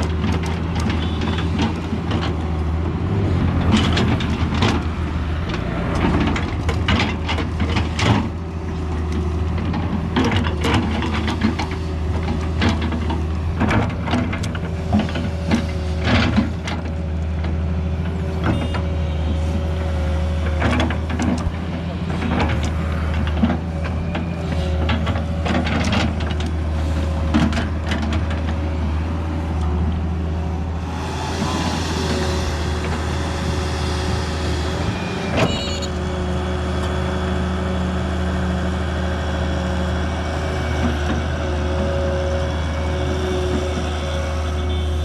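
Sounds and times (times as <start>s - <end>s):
excavator diesel engine running: 0.0s - 45.0s
hydraulic whine: 30.6s - 45.0s
hiss: 30.8s - 34.9s.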